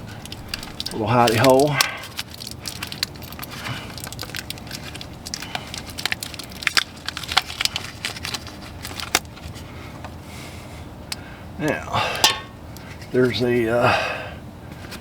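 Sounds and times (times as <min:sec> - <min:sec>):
plastic packaging crackling: 0:00.0 - 0:09.6.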